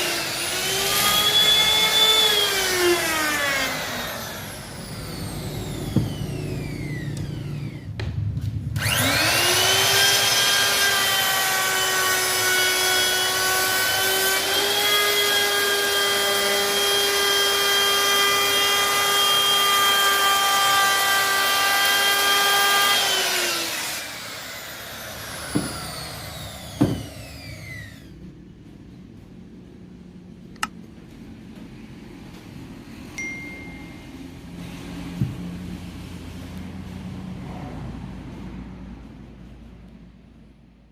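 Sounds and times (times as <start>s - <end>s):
wood router whining: 0.0s - 8.0s, 8.8s - 28.3s.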